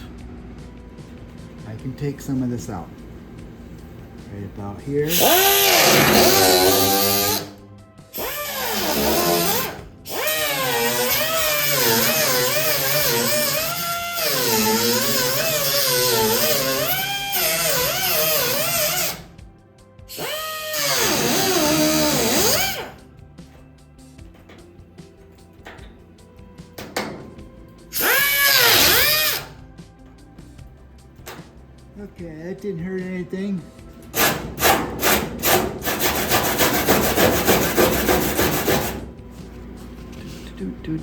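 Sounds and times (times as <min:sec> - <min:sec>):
power tool cutting sheet metal: 0:05.0 - 0:19.4, 0:20.1 - 0:23.0, 0:27.9 - 0:29.6, 0:34.1 - 0:39.1.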